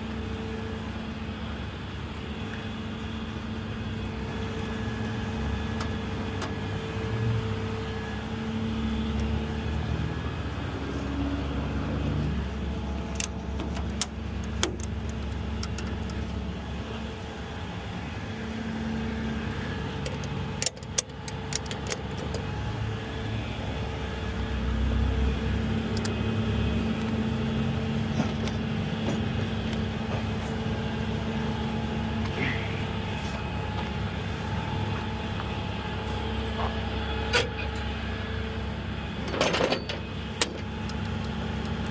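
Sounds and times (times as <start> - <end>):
tow truck engine running: 0.0 - 41.9
sharp clicks and knocks: 13.0 - 16.2, 20.0 - 22.4.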